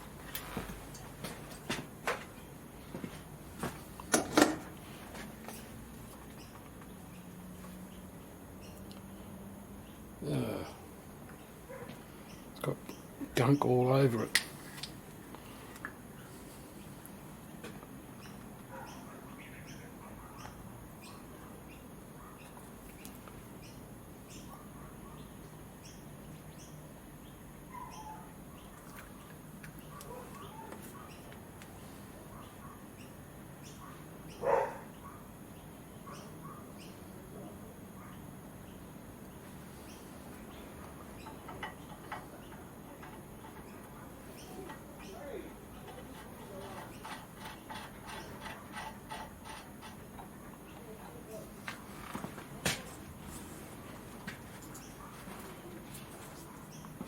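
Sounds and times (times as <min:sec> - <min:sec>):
faint steady hum: 0:00.0 - 0:57.0
small bird chirping: 0:06.3 - 0:10.1, 0:18.2 - 0:31.3, 0:38.0 - 0:49.2
metal parts clicking and knocking: 0:41.0 - 0:50.4.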